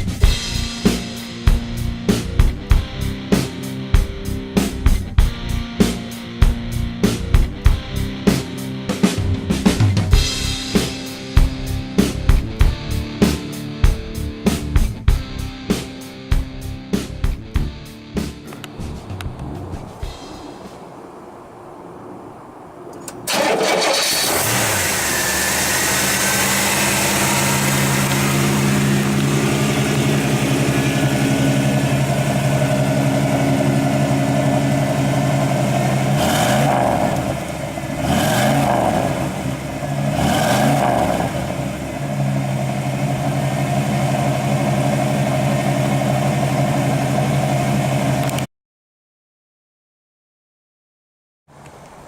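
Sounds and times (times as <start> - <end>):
car engine starting: 17.0 - 48.5
car engine revving: 17.6 - 48.4
car engine idling: 18.3 - 48.4.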